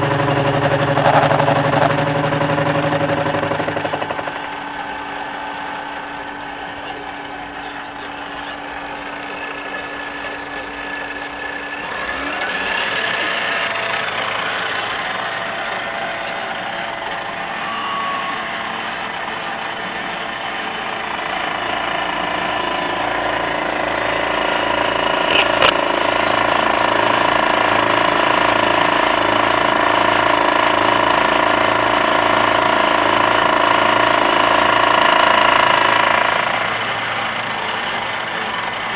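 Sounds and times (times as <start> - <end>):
milling machine cutting gear: 0.0 - 16.6, 21.0 - 36.8
rising machine whine: 0.0 - 36.7.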